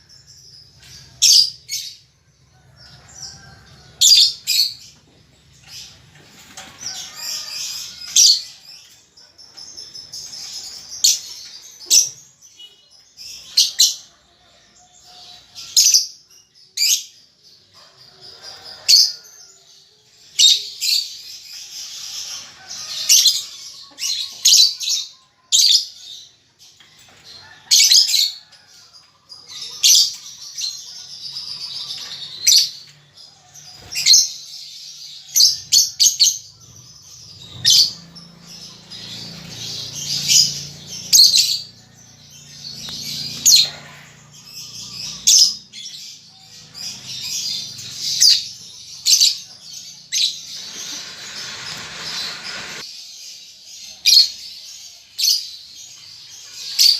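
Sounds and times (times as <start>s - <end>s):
soft bird chatter: 0.0s - 56.9s.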